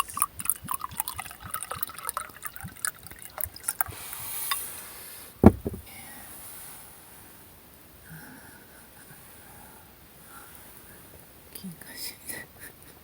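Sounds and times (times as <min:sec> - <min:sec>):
wine pouring into a glass: 0:00.0 - 0:03.9
sharp thump: 0:05.4 - 0:05.8.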